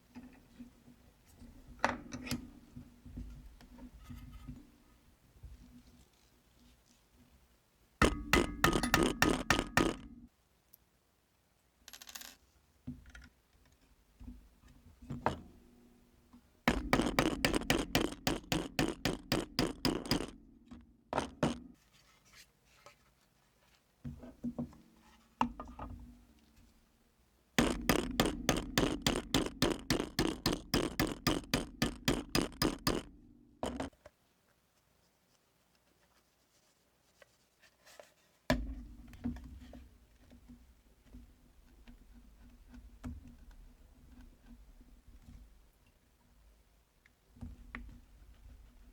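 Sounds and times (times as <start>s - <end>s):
metal knocks and clinks: 8.0s - 10.0s.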